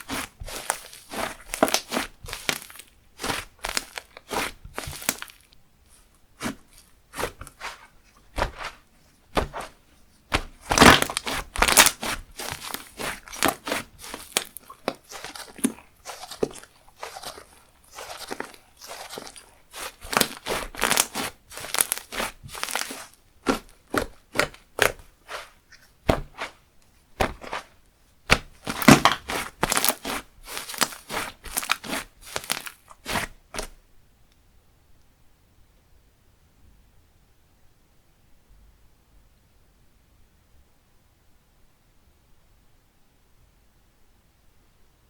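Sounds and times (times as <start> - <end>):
slime crackling and popping: 0.0 - 5.6, 9.4 - 26.6, 27.2 - 27.7, 28.3 - 33.7.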